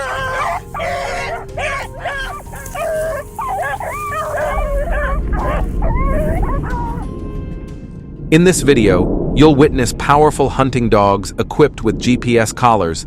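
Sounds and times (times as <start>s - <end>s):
dogs barking and yipping: 0.0s - 7.1s
dogs whining: 0.0s - 7.1s
low rumble: 4.7s - 13.0s.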